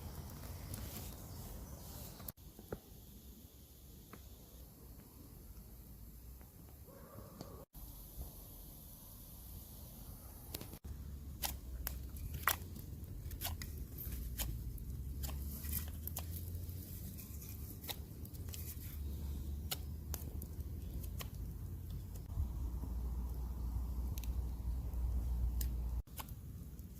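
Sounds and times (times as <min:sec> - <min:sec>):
knife carving wood: 0:11.3 - 0:22.3.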